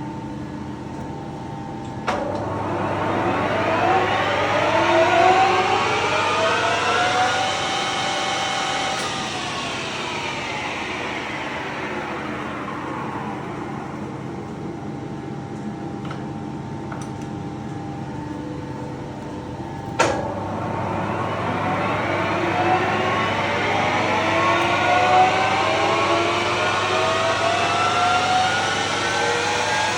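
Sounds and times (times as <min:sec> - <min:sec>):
lathe spindle whining: 0:02.1 - 0:15.0, 0:20.0 - 0:29.9.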